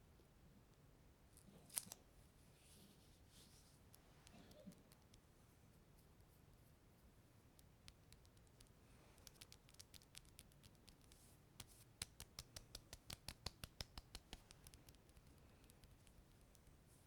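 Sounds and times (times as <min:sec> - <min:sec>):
faint sticky clicks: 0:03.8 - 0:05.3, 0:07.5 - 0:16.8.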